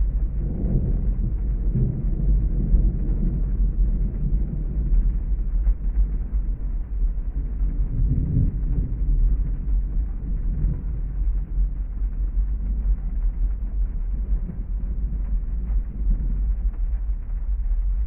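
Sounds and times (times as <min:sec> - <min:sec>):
low rumble: 0:00.0 - 0:18.0
rain hiss: 0:00.0 - 0:18.0.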